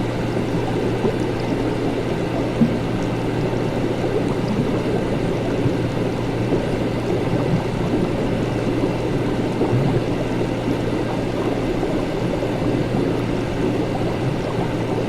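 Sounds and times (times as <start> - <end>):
liquid bubbling and gurgling: 0.0 - 15.0
low electrical hum: 0.0 - 15.0.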